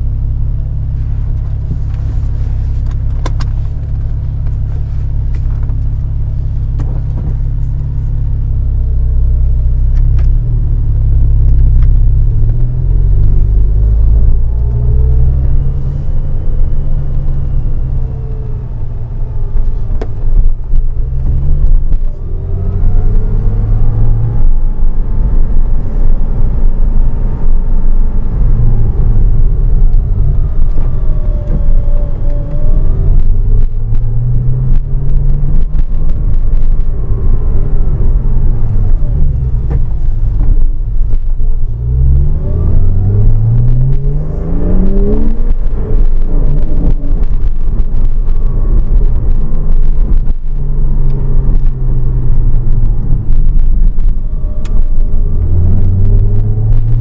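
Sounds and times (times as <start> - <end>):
car engine accelerating: 0.0 - 57.0
road noise: 0.0 - 57.0
audio crackling clicks: 2.8 - 3.8, 43.4 - 57.0.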